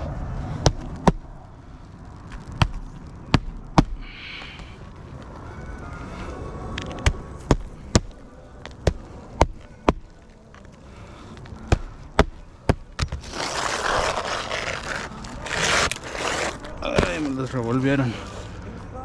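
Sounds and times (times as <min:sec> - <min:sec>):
rough scraping rustling: 0:00.0 - 0:19.0.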